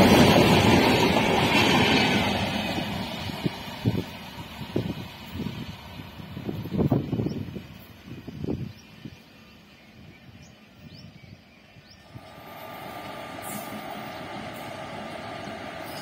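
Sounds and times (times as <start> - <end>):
train rushing with whine: 0.0 - 10.8, 11.6 - 16.0
wind gust on microphone: 3.2 - 8.9.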